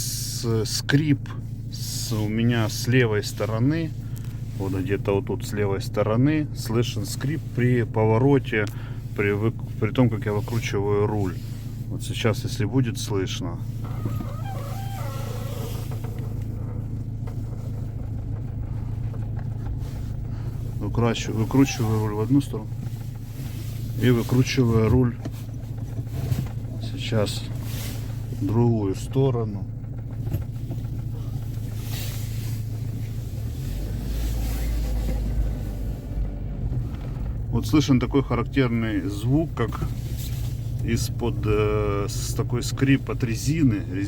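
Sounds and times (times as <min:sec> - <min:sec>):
car engine idling: 0:00.0 - 0:44.0
rubber creaking on metal: 0:13.8 - 0:16.8.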